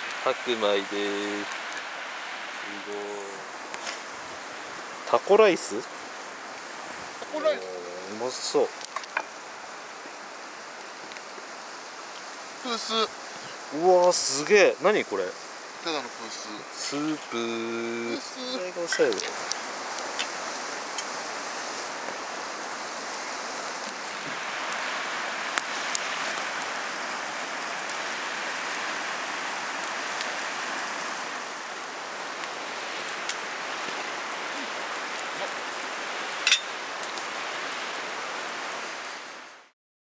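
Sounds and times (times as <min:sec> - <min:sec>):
steady rain: 0:00.0 - 0:39.8.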